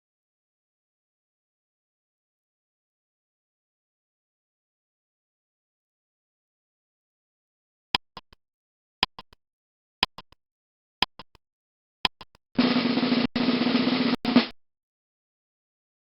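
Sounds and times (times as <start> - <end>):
timer clicks: 8.0 - 8.4, 9.0 - 9.4, 10.0 - 10.4, 11.0 - 11.4, 12.0 - 12.4
drum roll: 12.6 - 14.6.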